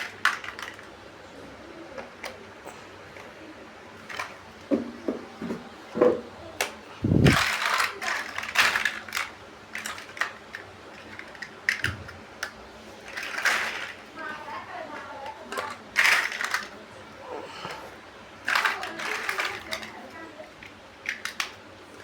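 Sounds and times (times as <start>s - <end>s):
loose plastic pieces rattling: 7.0s - 12.0s, 13.1s - 14.1s, 14.9s - 16.8s, 18.5s - 20.0s, 20.6s - 21.6s.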